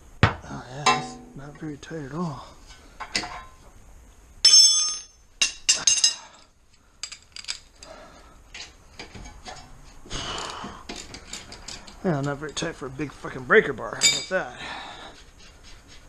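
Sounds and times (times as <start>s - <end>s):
metal tools clinking: 4.4s - 7.9s, 10.9s - 12.6s, 14.0s - 14.5s.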